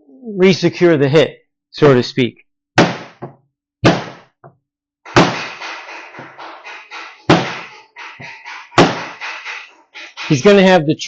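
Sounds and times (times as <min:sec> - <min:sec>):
mallet knocking on wood: 0:07.3 - 0:09.2.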